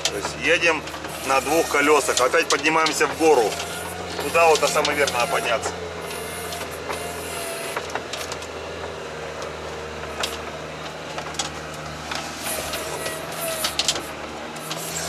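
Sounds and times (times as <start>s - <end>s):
knocks and clicks from vehicle body: 0.0s - 1.2s, 7.7s - 15.0s
vehicle engine under load: 0.0s - 15.0s.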